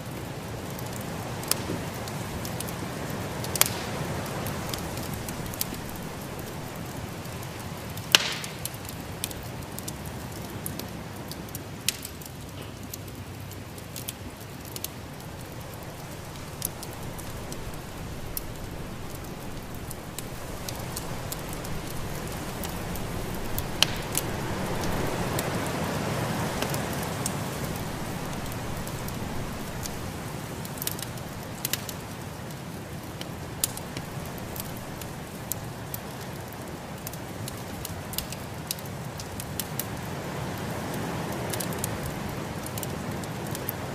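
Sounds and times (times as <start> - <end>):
wood fire crackling: 0.0 - 43.9
sharp pops of fire: 0.7 - 32.1, 33.1 - 39.9
steady low rush: 15.0 - 30.6.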